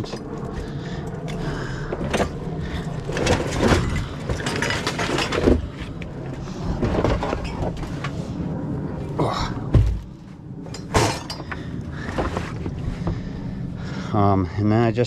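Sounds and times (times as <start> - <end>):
steady low hum: 0.0 - 15.0
scrap junk clattering: 2.0 - 6.0, 10.7 - 12.7.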